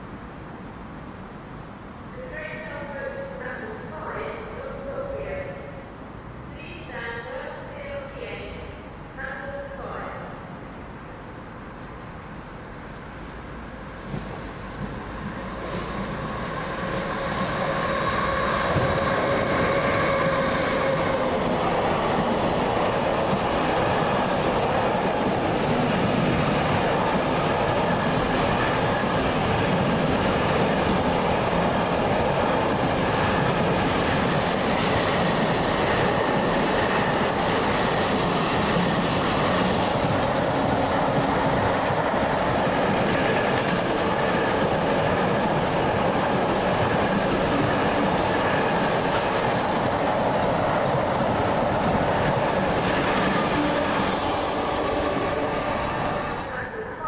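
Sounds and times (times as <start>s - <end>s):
train wheels rumbling on rails: 14.0s - 56.9s.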